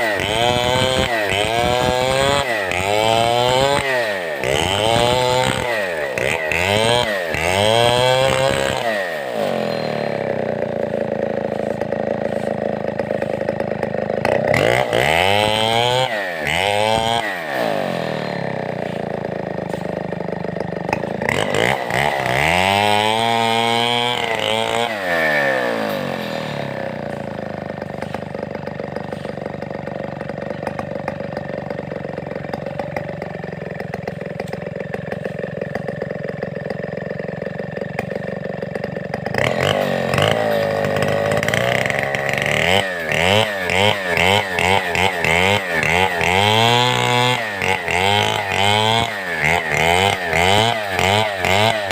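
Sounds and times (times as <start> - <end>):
chainsaw running and revving: 0.0 - 51.9.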